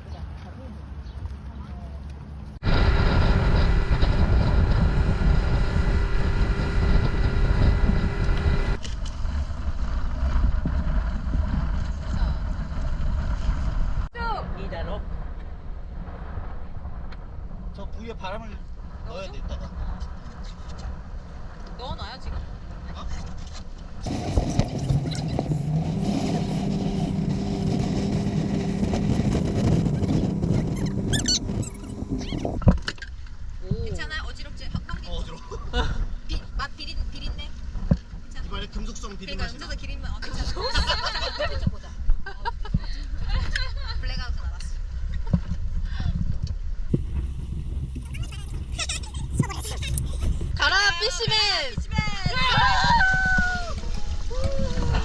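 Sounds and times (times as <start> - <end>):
wind buffeting microphone: 0.0 - 23.3, 23.9 - 32.8, 35.8 - 55.0
engine whine: 2.0 - 14.0, 24.1 - 32.6, 46.9 - 50.6
motorboat engine running: 2.3 - 14.0, 24.1 - 32.6, 46.9 - 50.7
short high squeaks: 29.6 - 32.6.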